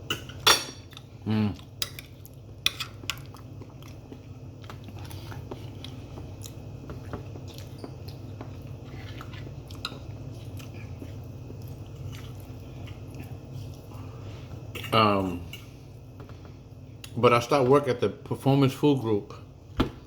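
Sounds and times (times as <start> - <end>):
person chewing food: 0.9 - 14.9.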